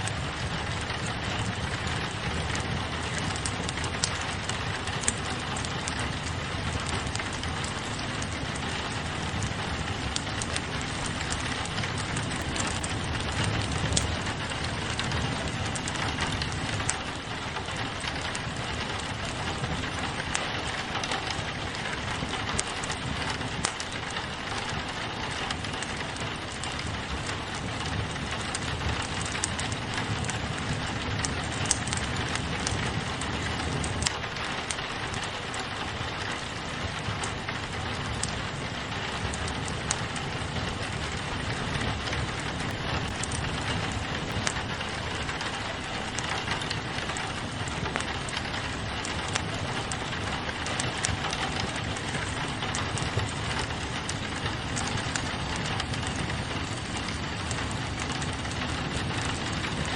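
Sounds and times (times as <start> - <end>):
rain pattering on a window: 0.0 - 59.9
wood fire crackling: 0.0 - 59.9.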